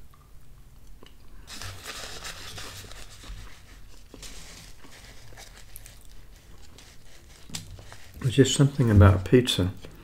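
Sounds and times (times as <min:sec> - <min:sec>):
person chewing pizza: 0:03.7 - 0:08.2.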